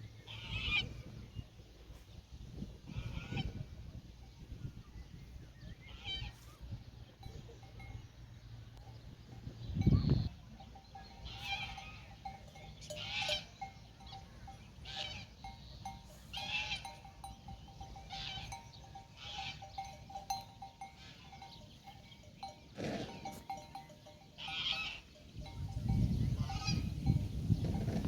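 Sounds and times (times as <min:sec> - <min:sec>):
livestock bells clanking: 0:07.1 - 0:28.0.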